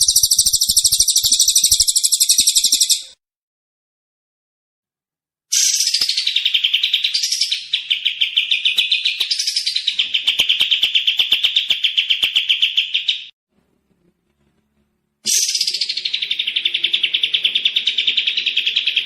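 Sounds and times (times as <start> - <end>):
songbird trilling: 0.0 - 3.1, 15.3 - 19.0.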